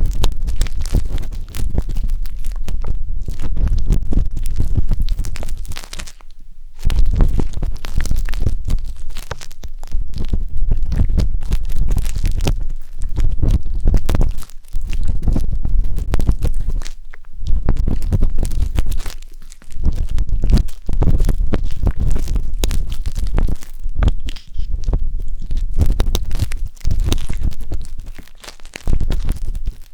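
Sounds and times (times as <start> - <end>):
skewer scratching on microphone: 19.8 - 29.7.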